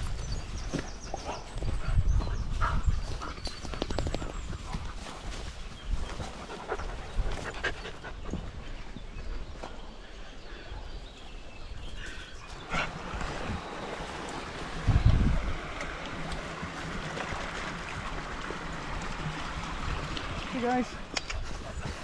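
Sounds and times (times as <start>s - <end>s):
dogs panting: 1.1s - 11.2s, 11.9s - 13.7s, 21.2s - 22.0s.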